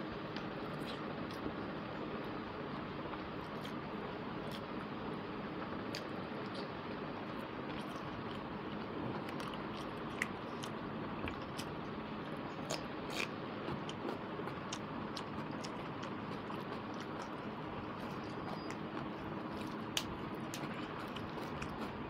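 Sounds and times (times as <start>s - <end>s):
wet chewing and mouth smacks: 7.7s - 11.8s, 12.5s - 22.0s.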